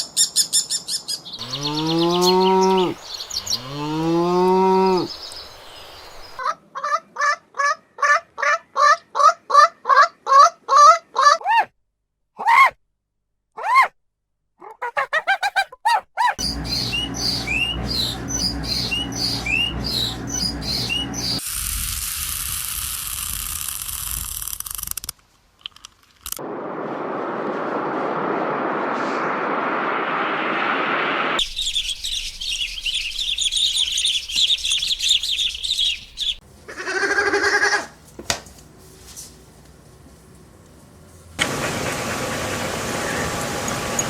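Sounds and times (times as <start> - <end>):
birds chirping: 0.4 - 6.4, 14.9 - 21.4, 31.4 - 36.4
steady hiss and rushing noise: 5.0 - 6.4.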